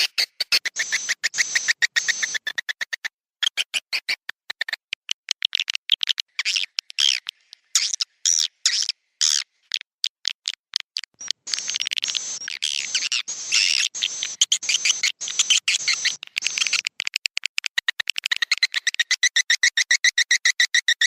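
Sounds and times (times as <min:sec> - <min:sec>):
swiftlet chirps and twittering: 0:00.0 - 0:02.8, 0:11.2 - 0:17.2, 0:18.1 - 0:21.0.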